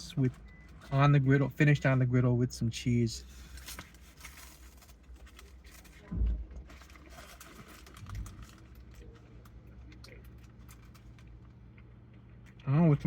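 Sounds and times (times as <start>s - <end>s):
dull low thump: 6.1s - 6.7s.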